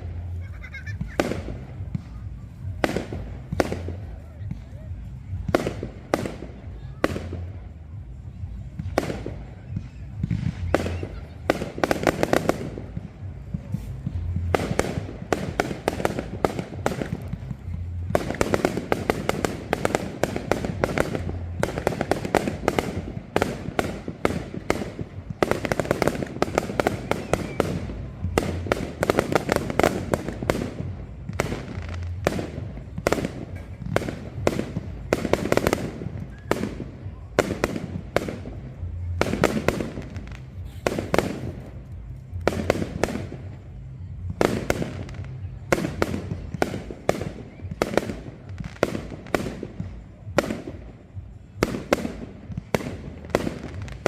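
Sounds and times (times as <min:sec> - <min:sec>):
fireworks cracking and banging: 0:00.0 - 0:54.0.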